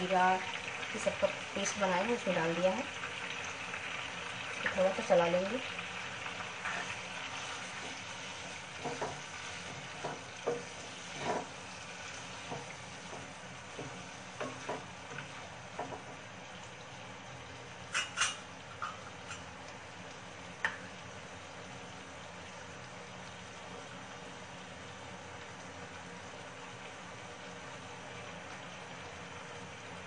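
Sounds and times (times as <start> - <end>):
chicken sizzling in a pan: 0.0 - 30.0
spatula knocking and scraping pan: 8.7 - 11.6, 12.4 - 16.2.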